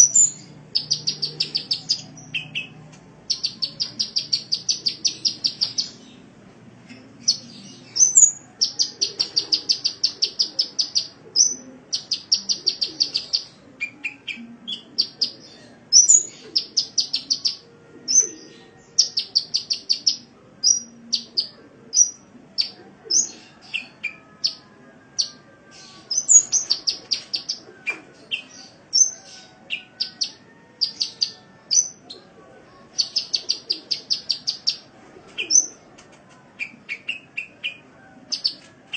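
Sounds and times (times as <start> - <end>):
sunbird chattering song: 0.0 - 6.0.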